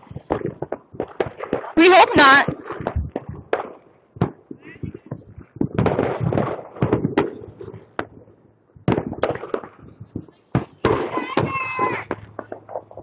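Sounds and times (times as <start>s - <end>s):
fireworks popping and crackling: 0.0s - 13.0s.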